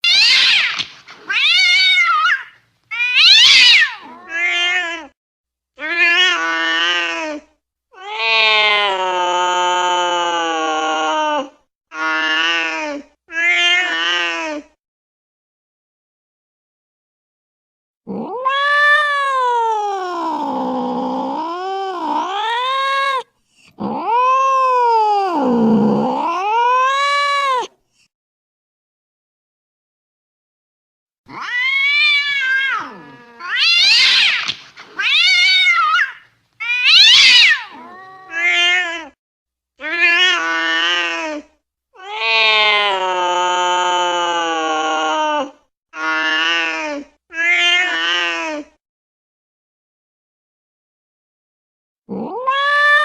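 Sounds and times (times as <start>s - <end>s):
cat yowling angrily: 0.0s - 5.1s, 18.1s - 23.2s, 23.8s - 27.7s, 31.3s - 39.2s, 39.8s - 41.4s, 42.0s - 48.6s, 52.1s - 53.0s.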